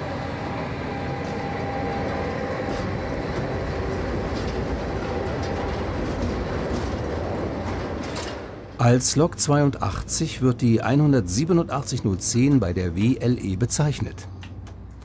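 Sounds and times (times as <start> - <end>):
freight train rolling past: 0.0 - 13.8
wheels clicking on rails: 0.6 - 13.5.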